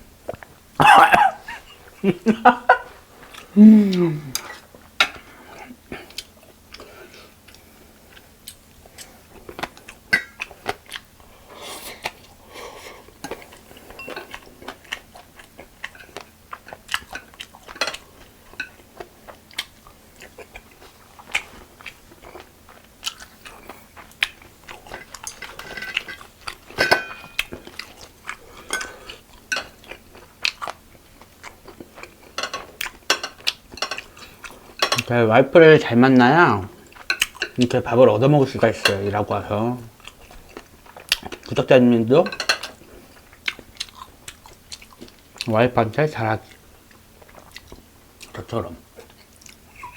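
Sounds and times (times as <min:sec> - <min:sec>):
person chewing crunchy food: 0:02.6 - 0:35.0, 0:39.8 - 0:41.6, 0:42.7 - 0:45.5, 0:46.4 - 0:49.9
utensils clinking on dishes: 0:13.9 - 0:14.4, 0:24.9 - 0:27.6, 0:34.8 - 0:35.1, 0:42.2 - 0:42.8.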